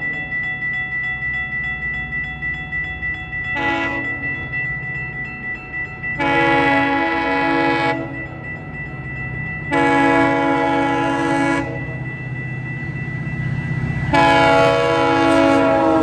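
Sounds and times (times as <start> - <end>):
locomotive engine throbbing: 0.0 - 16.0
locomotive air horn blasts: 3.6 - 4.0, 6.2 - 8.1, 9.7 - 11.8, 14.1 - 16.0.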